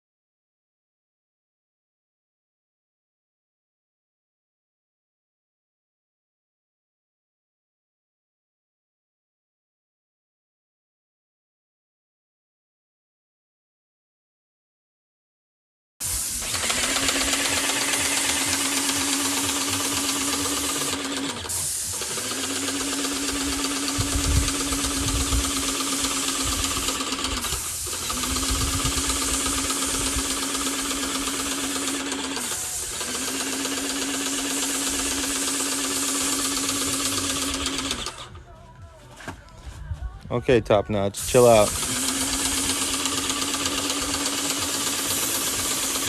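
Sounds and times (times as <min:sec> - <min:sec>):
hiss of paint spray: 0:16.0 - 0:38.0, 0:41.1 - 0:46.0
pump humming: 0:16.0 - 0:38.5, 0:41.2 - 0:46.0.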